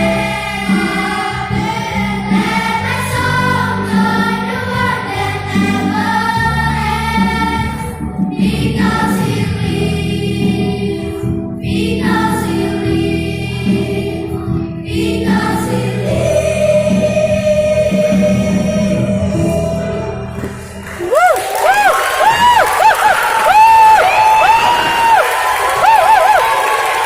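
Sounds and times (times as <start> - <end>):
children's choir singing: 0.0 - 20.8.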